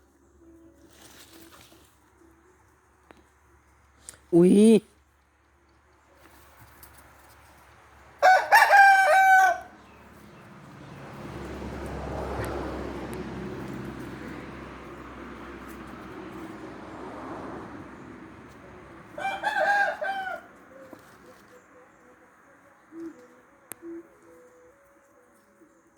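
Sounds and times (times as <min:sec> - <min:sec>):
rooster crowing: 0:08.2 - 0:10.0, 0:19.1 - 0:21.0.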